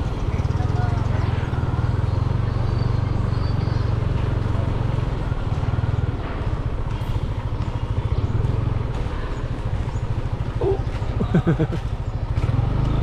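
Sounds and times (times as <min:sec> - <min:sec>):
small motorcycle engine running: 0:00.0 - 0:13.0.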